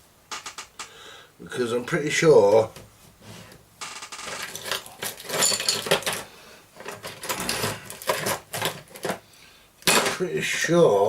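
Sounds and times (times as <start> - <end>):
metal tools clattering: 4.2 - 9.2, 9.9 - 10.2.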